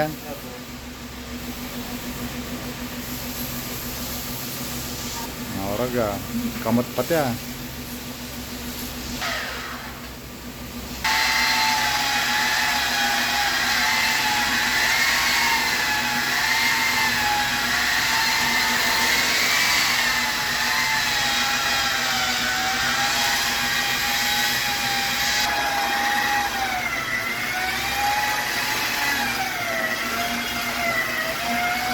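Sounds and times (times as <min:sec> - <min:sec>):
electric polisher motor whining: 0:11.0 - 0:31.9.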